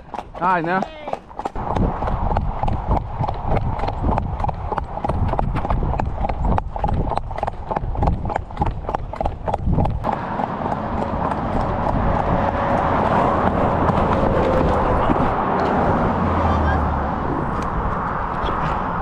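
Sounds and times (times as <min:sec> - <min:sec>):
horse hooves clip-clopping: 0:00.0 - 0:16.1
steady rushing noise: 0:00.4 - 0:19.0.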